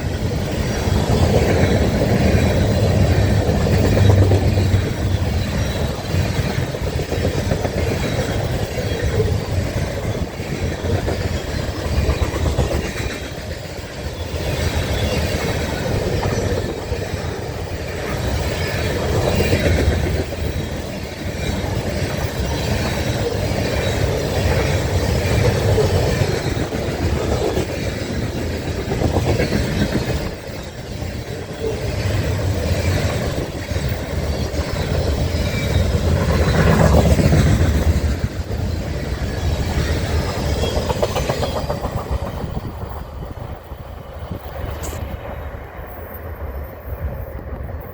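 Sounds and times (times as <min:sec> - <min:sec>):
wheels clacking over rail joints: 0:00.0 - 0:45.2
train cars rumbling past: 0:00.0 - 0:47.9.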